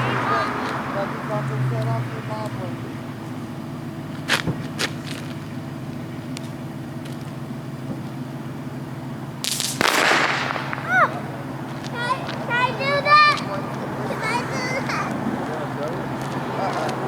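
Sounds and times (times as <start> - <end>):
low mechanical hum: 2.8 - 9.8
hissing burst: 9.4 - 11.5.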